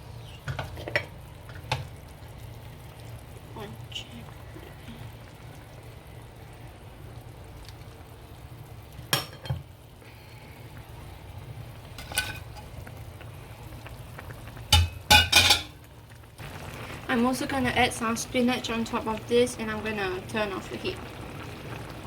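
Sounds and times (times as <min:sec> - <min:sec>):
faint steady sizzle in a pan: 0:00.0 - 0:22.0
spoon clinking against pan: 0:14.7 - 0:15.7.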